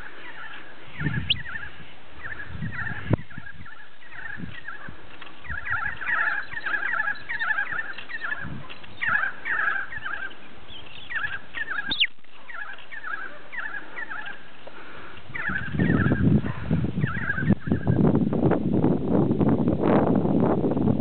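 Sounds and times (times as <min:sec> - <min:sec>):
birds chirping: 0:00.0 - 0:18.0
sharp falling bird whistle: 0:11.2 - 0:12.2.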